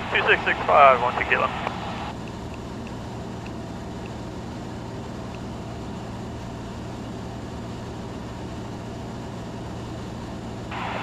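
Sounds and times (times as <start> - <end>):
low hum: 0.0 - 8.8
propeller plane engine drone: 0.0 - 11.0.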